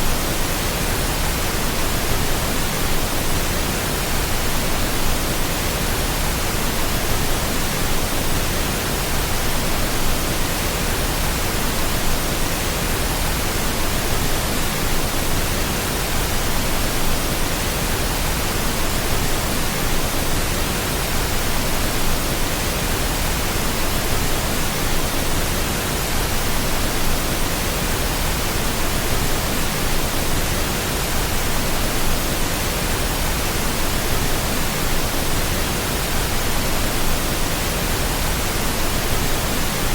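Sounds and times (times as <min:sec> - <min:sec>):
steady pink noise hiss: 0:00.0 - 0:39.9.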